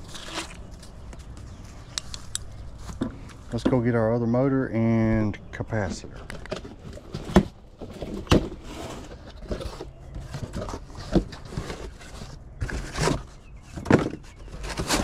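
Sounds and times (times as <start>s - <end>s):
parts knocking and rustling: 2.0s - 4.0s, 5.8s - 15.0s.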